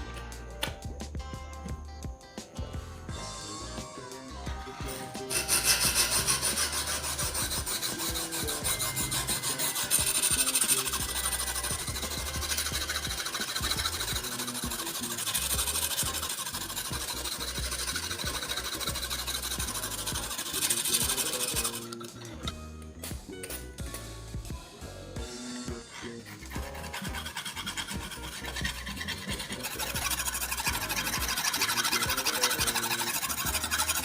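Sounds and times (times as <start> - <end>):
knife blade scraping on sharpener: 4.9 - 22.5, 25.8 - 34.0.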